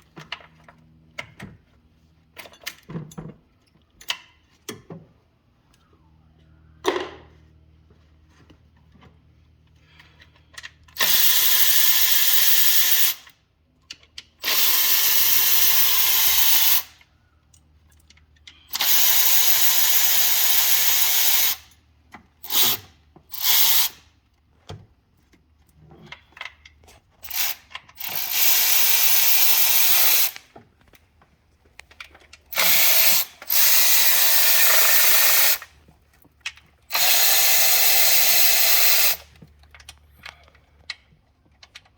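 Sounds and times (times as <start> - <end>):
handheld power tool running: 10.9 - 13.3, 14.4 - 17.0, 18.7 - 21.7, 22.4 - 24.0, 27.2 - 30.5, 32.5 - 35.7, 36.9 - 39.3.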